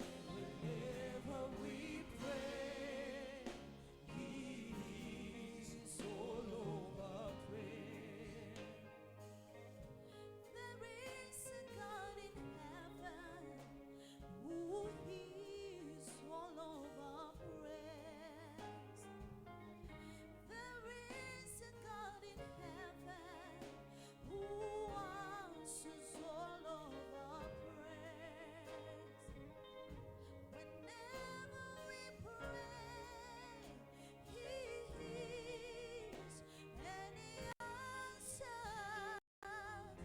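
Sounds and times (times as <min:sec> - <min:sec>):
person singing with vibrato: 0:00.0 - 0:09.4, 0:20.0 - 0:40.0
sustained instrumental accompaniment: 0:00.0 - 0:18.2.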